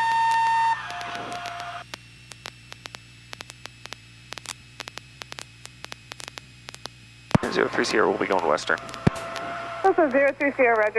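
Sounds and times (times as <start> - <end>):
low steady hum: 0.0 - 10.9
static clicks: 0.0 - 10.9
steady tone stepping down: 0.0 - 10.9.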